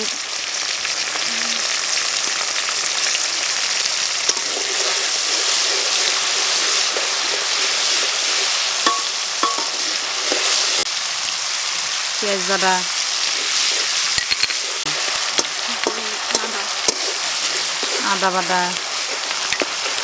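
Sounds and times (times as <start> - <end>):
onions sizzling in hot oil: 0.0 - 20.0
metal spatula stirring in pan: 4.3 - 10.8, 13.2 - 20.0.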